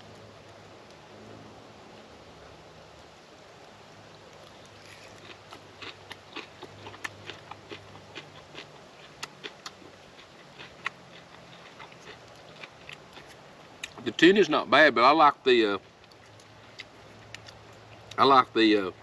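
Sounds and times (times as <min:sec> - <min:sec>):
person chewing: 0:04.4 - 0:14.0, 0:16.0 - 0:18.2.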